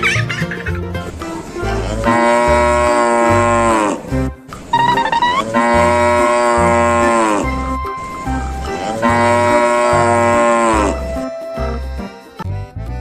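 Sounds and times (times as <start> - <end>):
cow mooing: 1.8 - 4.2, 5.1 - 7.6, 8.7 - 11.1.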